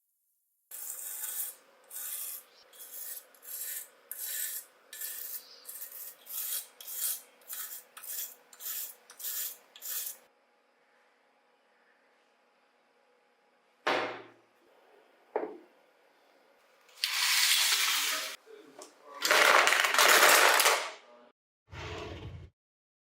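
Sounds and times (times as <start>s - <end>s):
rasping strokes by hand: 0.7s - 10.3s.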